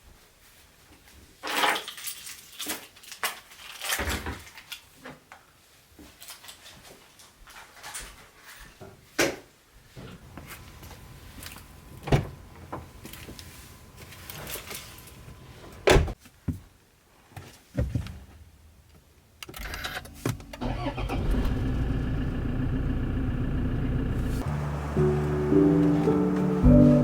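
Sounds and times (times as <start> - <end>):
car engine starting and idling: 10.1 - 16.0, 19.6 - 27.0.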